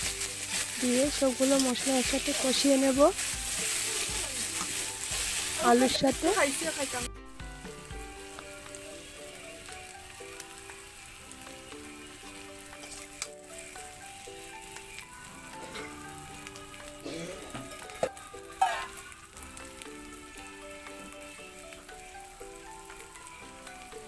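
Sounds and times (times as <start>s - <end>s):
spatula stirring: 0.0s - 7.1s
background music melody: 0.0s - 24.0s
potatoes sizzling in oil: 0.0s - 24.0s.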